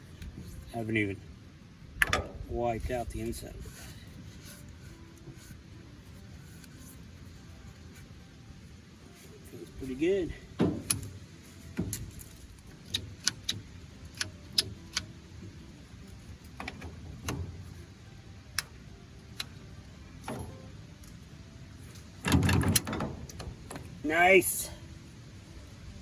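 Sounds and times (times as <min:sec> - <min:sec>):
metal clicks and knocks: 0:02.0 - 0:02.5, 0:10.5 - 0:17.9, 0:20.2 - 0:21.2, 0:21.8 - 0:24.0
metal rattling clatter: 0:10.5 - 0:12.8, 0:20.2 - 0:21.2, 0:21.8 - 0:24.0.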